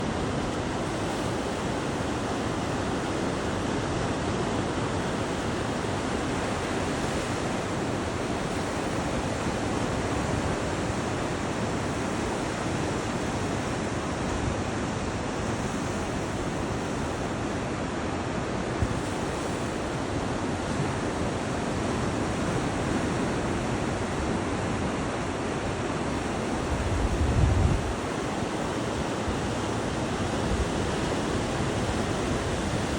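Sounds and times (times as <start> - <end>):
surf breaking on beach: 18.5 - 32.9.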